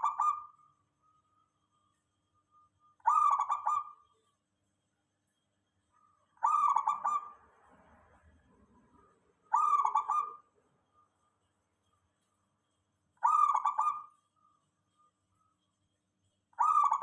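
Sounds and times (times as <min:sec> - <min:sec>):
dove cooing: 0:00.0 - 0:00.6, 0:03.0 - 0:04.1, 0:06.4 - 0:07.4, 0:09.5 - 0:10.5, 0:13.2 - 0:14.2, 0:16.6 - 0:17.0.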